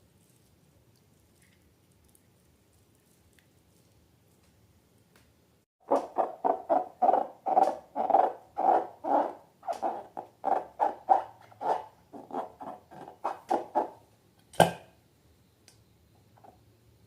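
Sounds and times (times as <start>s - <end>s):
slime squelching: 0.0s - 4.5s.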